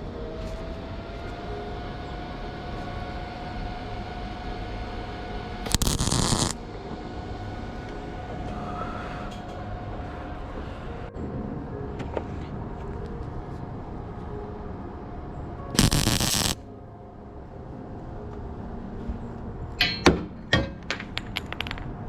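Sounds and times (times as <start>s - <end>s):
steady background noise: 0.0s - 22.0s
welding arc crackling: 5.7s - 6.6s, 15.8s - 16.6s.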